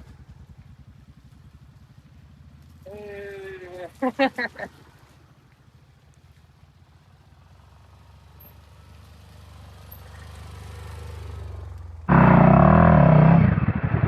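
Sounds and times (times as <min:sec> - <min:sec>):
motorcycle engine revving: 0:07.4 - 0:14.0.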